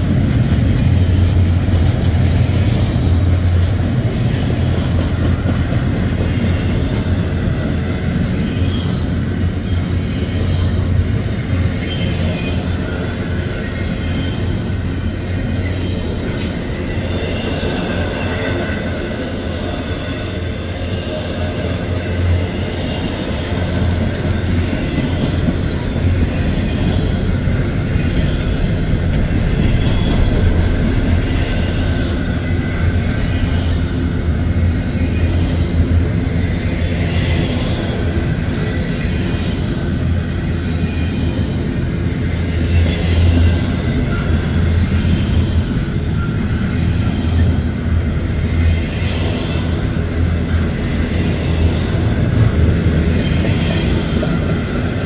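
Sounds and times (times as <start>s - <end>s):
steel wheels rolling on rail: 0.0s - 55.0s
train cars clacking: 0.0s - 55.0s.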